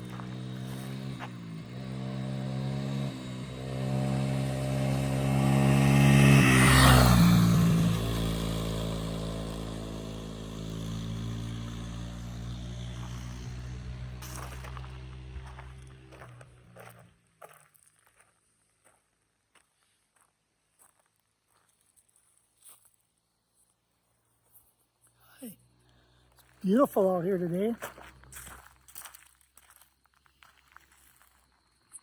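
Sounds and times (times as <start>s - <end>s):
motorcycle engine accelerating: 0.0s - 17.3s.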